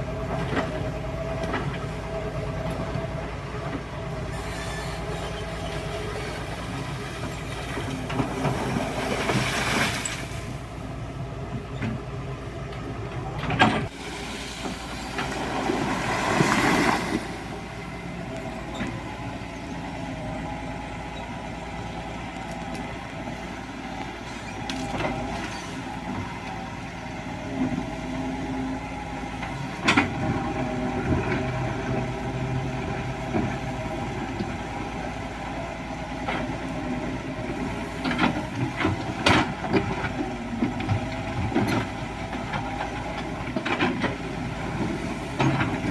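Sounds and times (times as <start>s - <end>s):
excavator diesel engine running: 0.0s - 45.9s
gravel scraping and rattling: 13.8s - 17.6s.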